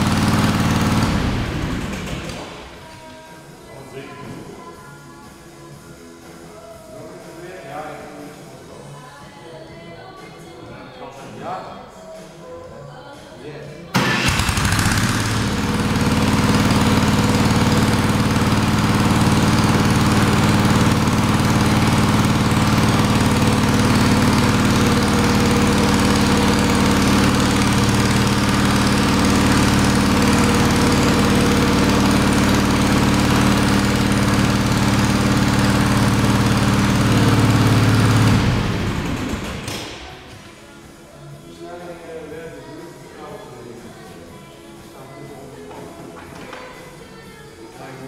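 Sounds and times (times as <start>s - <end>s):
small engine starting and running: 0.0s - 3.0s, 14.0s - 40.3s.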